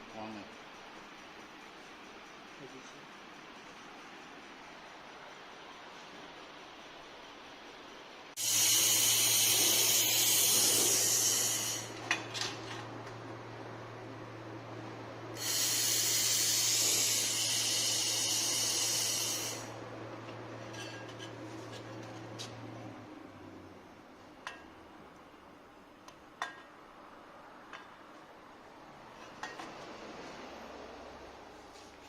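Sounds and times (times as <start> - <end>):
laser welder hissing: 8.4 - 12.0, 15.4 - 19.8.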